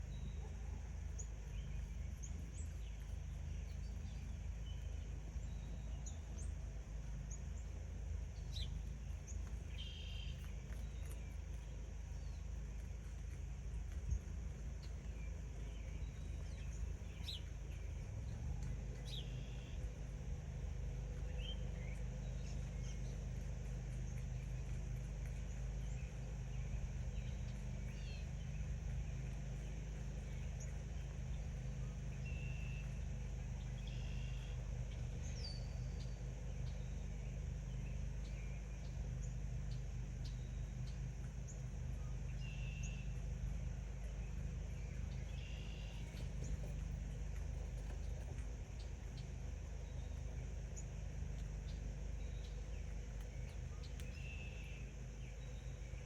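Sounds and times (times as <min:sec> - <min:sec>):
steady low rumble: 0:00.0 - 0:56.0
birds chirping and whistling: 0:09.4 - 0:11.2, 0:19.0 - 0:19.8, 0:33.6 - 0:39.0, 0:44.2 - 0:46.8.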